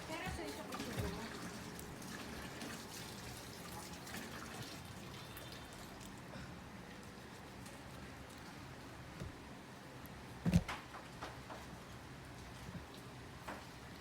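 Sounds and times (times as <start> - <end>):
running water trickling: 0.0 - 9.1.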